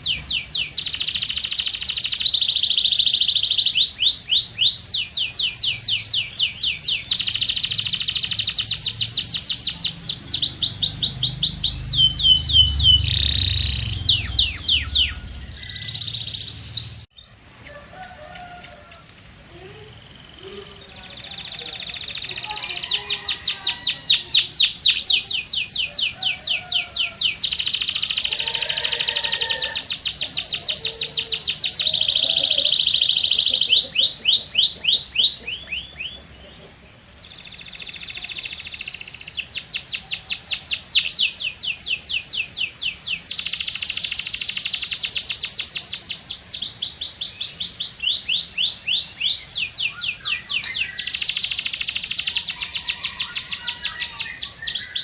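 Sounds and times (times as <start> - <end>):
canary singing fast trills: 0.0 - 55.0.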